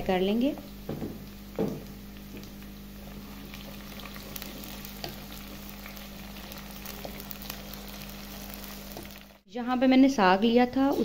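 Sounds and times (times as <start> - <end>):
food sizzling in hot oil: 1.2 - 9.5.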